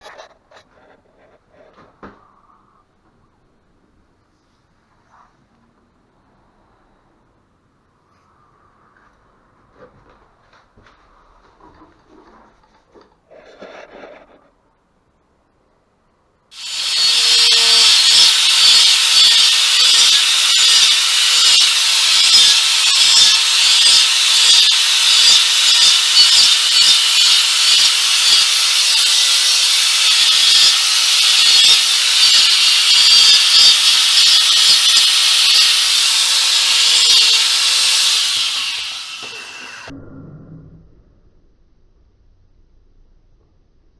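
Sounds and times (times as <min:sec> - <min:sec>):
angle grinder cutting brick: 0:16.5 - 0:39.9.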